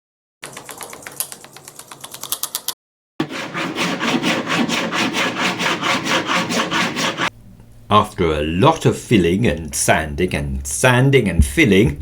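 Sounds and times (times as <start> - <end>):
sandpaper rubbing on wood: 3.2 - 7.3.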